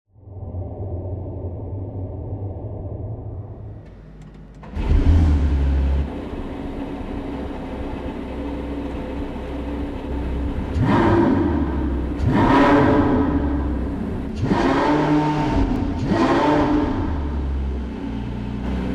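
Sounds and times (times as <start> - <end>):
car engine accelerating hard: 4.6 - 18.9.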